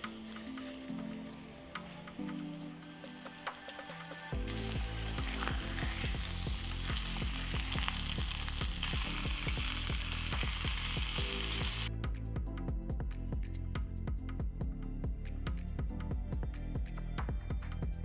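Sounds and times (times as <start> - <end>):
chicken sizzling in a frying pan: 0.0 - 11.9
background music with a beat: 0.0 - 18.0.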